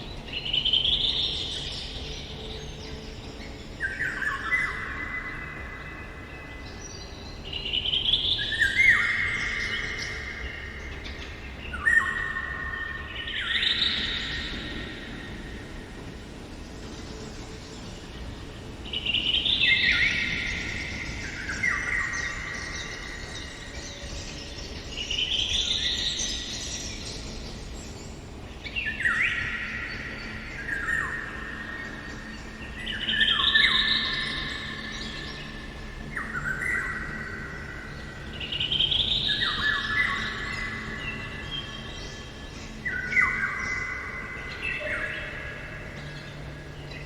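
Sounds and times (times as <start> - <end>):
faint outdoor background: 0.0 - 47.0
songbird singing: 0.0 - 47.0.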